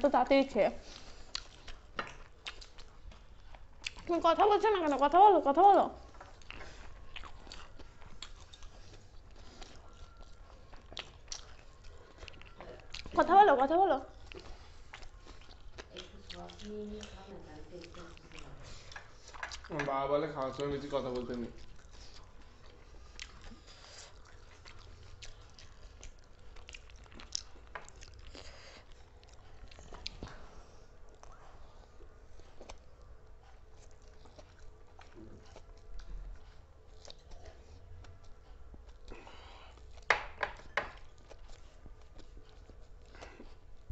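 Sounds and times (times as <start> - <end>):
person chewing food: 0.8 - 5.1, 6.0 - 43.9
food crunching: 6.0 - 31.4.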